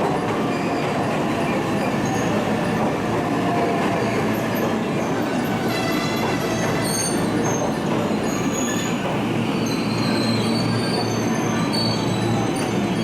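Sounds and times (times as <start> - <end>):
train wheels rumbling on rails: 0.0 - 13.0
faint high brake squeals: 9.6 - 13.0.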